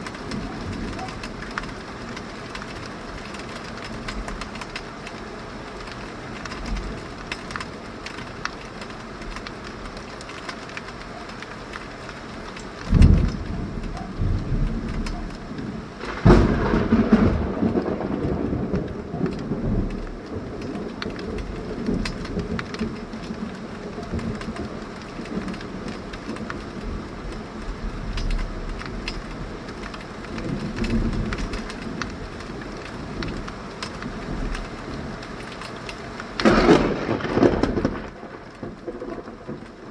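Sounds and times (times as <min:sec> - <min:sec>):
heavy rain falling: 0:00.0 - 0:39.9
thunder: 0:12.9 - 0:26.9, 0:36.4 - 0:39.9.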